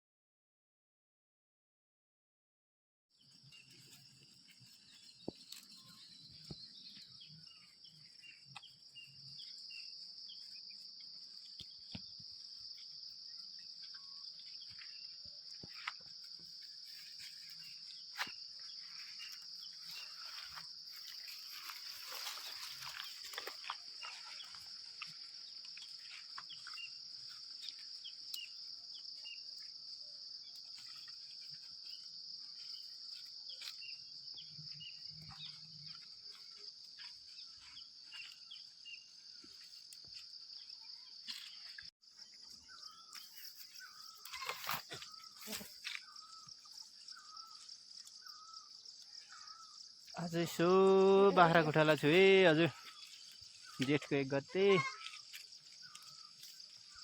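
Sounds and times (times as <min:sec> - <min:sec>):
insects droning: 0:03.2 - 0:57.0
faint chirps and clicks: 0:03.6 - 0:13.0, 0:19.1 - 0:29.7, 0:54.9 - 0:57.0.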